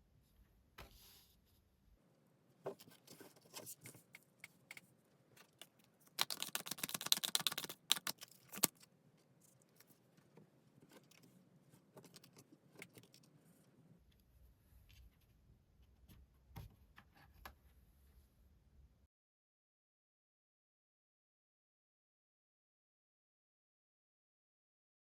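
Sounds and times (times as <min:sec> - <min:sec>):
cards being shuffled: 0:05.6 - 0:08.9.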